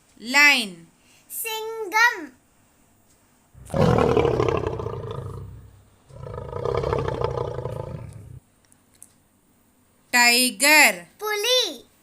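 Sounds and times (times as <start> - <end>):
lion roaring: 3.6 - 8.4.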